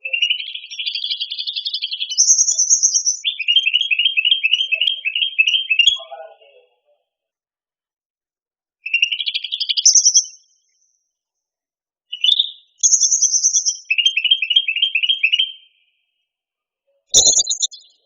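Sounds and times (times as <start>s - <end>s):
songbird whistling phrases: 0.0s - 6.0s, 8.9s - 10.5s, 12.1s - 15.8s, 17.1s - 18.0s
rapid bird chirps: 0.0s - 6.1s, 8.8s - 10.9s, 12.1s - 16.1s, 17.0s - 18.0s.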